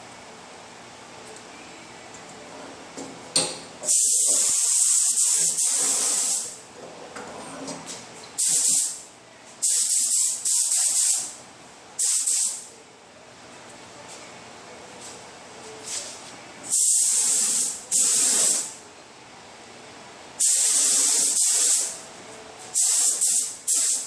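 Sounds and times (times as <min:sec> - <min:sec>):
spray gun hissing: 0:03.9 - 0:06.6, 0:09.6 - 0:11.3, 0:16.7 - 0:18.8, 0:20.4 - 0:22.0, 0:22.8 - 0:24.0.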